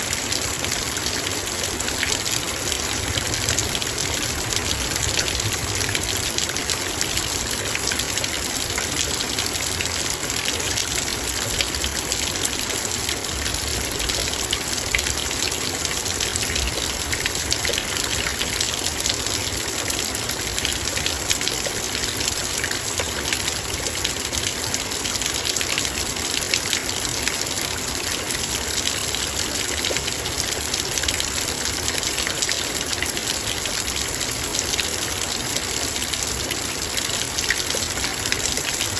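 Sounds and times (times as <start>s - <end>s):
heavy rain on a metal bowl: 0.0s - 38.9s.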